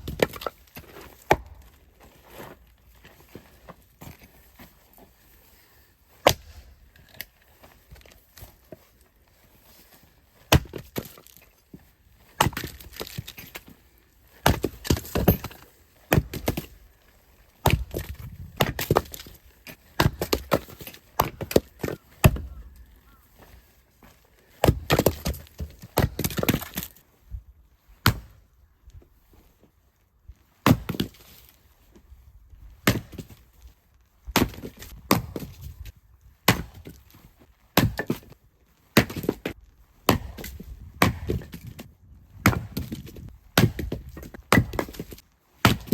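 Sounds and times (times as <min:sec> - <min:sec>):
firewood being chopped: 0:00.0 - 0:01.7, 0:06.2 - 0:07.3, 0:10.5 - 0:11.4, 0:12.3 - 0:13.7, 0:14.4 - 0:16.8, 0:17.6 - 0:22.6, 0:24.6 - 0:27.0, 0:28.0 - 0:28.4, 0:30.6 - 0:31.2, 0:32.8 - 0:33.4, 0:34.3 - 0:35.8, 0:36.4 - 0:45.9.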